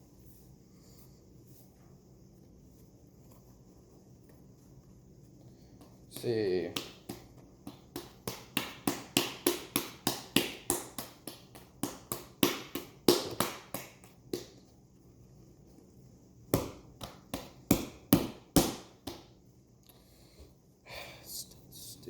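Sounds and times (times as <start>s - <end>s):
dough slapping on countertop: 5.7s - 14.7s, 16.5s - 19.4s.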